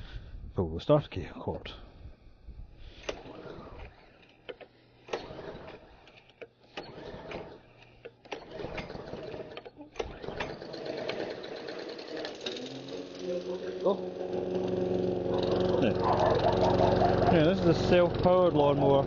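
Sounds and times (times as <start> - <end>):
lawn mower engine starting and running: 2.9 - 6.0, 6.7 - 7.8, 8.4 - 19.0.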